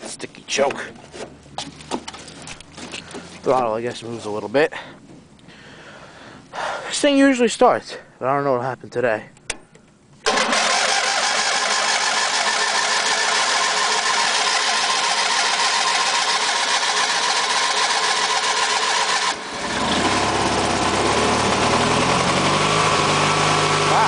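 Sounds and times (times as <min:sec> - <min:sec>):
lawn tractor engine running: 0:10.2 - 0:24.0
starter cranking engine: 0:10.2 - 0:24.0.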